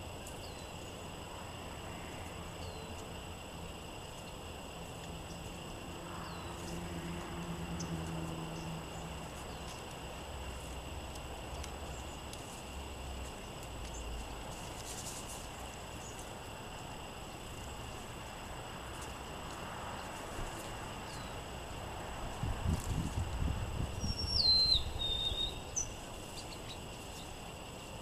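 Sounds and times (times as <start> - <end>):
songbird chirps: 0.0 - 1.4, 2.2 - 17.9, 19.9 - 21.6, 23.9 - 27.7
wind gusting on microphone: 22.1 - 25.0.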